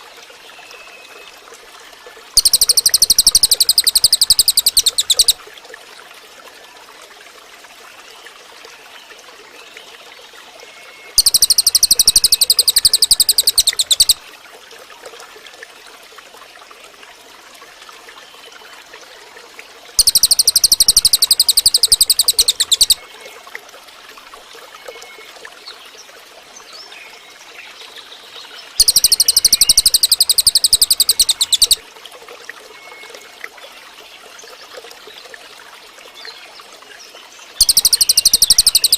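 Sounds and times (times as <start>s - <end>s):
bird fast trill: 2.4s - 5.4s, 11.2s - 14.2s, 20.0s - 23.0s, 28.8s - 31.8s, 37.6s - 38.9s
faint background bird chirps: 2.4s - 5.4s, 8.2s - 14.2s, 20.0s - 23.4s, 24.8s - 31.8s, 32.7s - 38.9s.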